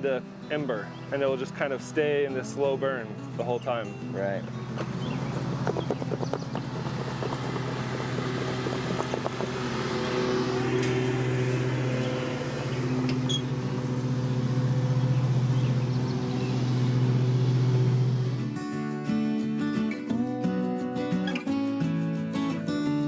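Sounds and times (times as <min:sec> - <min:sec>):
bees buzzing: 0:04.5 - 0:18.7.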